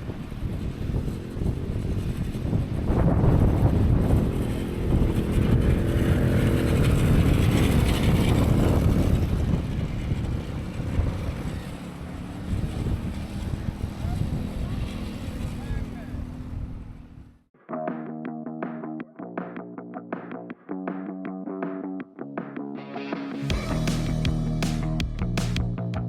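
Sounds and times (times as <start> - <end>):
wind on microphone: 0.0 - 17.3
engine running: 0.0 - 17.4, 23.4 - 26.0.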